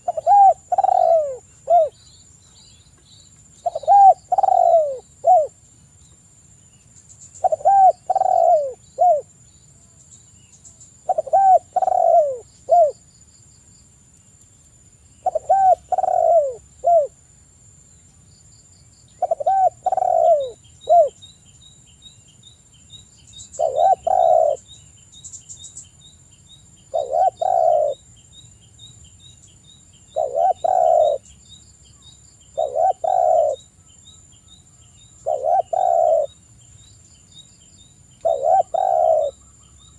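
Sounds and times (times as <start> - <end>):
dove cooing: 0.0 - 2.0, 3.6 - 5.6, 7.4 - 9.3, 11.0 - 13.0, 15.2 - 17.2, 19.2 - 21.2, 23.6 - 24.6, 26.9 - 28.0, 30.1 - 31.2, 32.6 - 33.7, 35.2 - 36.4, 38.2 - 39.5
small bird chirping: 0.0 - 13.2, 13.8 - 17.2, 17.8 - 39.9.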